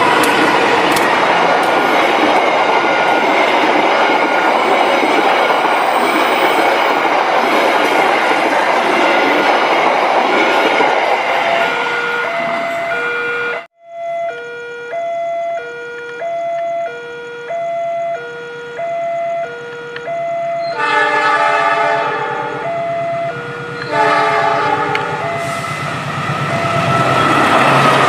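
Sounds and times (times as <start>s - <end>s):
train rumbling: 0.0s - 13.7s, 20.7s - 28.0s
level crossing two-tone alarm: 10.5s - 21.8s, 22.4s - 25.8s
train horn: 20.6s - 22.8s, 23.7s - 25.9s.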